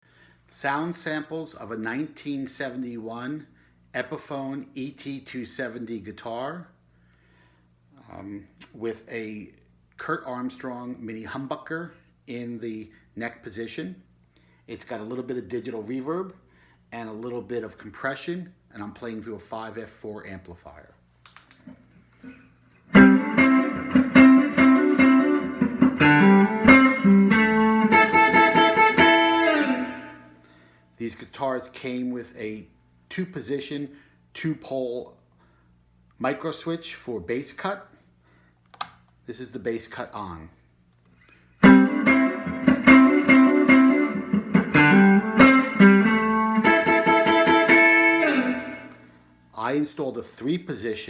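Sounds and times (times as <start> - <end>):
electric guitar picked notes: 22.9 - 30.4, 41.6 - 49.2.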